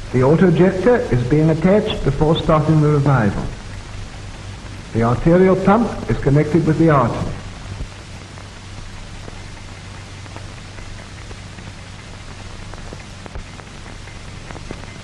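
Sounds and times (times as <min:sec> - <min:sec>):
crackles: 0:00.0 - 0:15.0
film soundtrack hiss: 0:00.0 - 0:15.0
low hum: 0:00.0 - 0:15.0.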